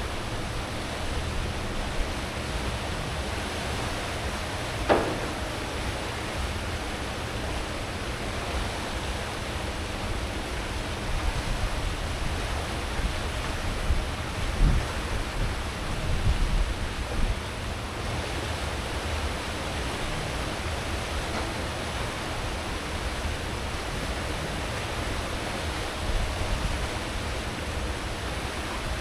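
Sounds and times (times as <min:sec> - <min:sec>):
ship wake rushing water: 0:00.0 - 0:29.0
low bumps: 0:04.6 - 0:06.7.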